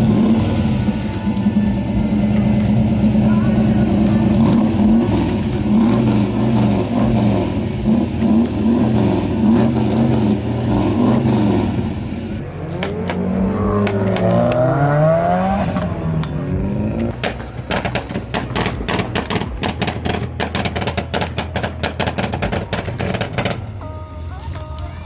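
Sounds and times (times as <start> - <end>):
car accelerating away: 0.0 - 23.8
car engine revving: 0.0 - 23.8.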